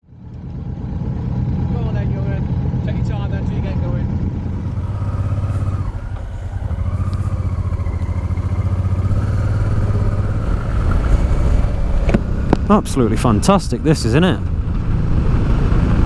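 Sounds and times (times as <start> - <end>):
motorcycle engine running: 0.1 - 16.0.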